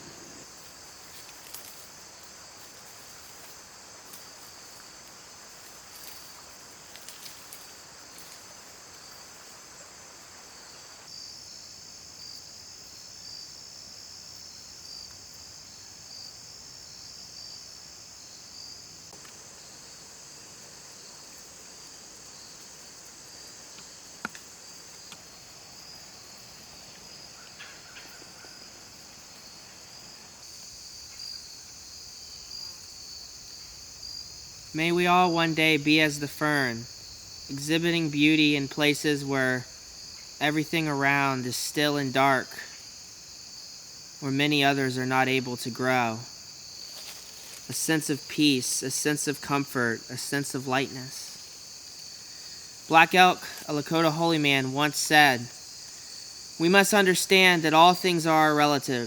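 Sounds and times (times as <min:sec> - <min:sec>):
insects chirping: 0:00.0 - 0:59.0
faint clicks and snaps: 0:23.8 - 0:24.5.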